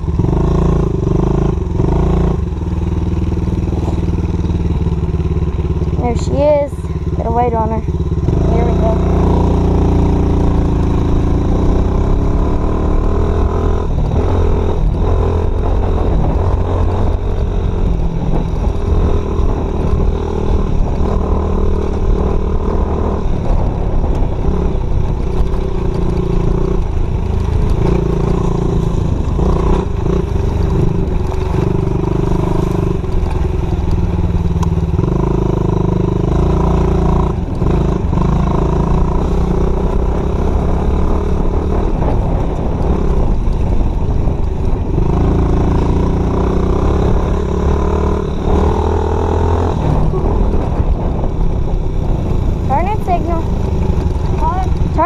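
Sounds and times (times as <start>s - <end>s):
dirt bike engine revving: 0.0s - 51.5s.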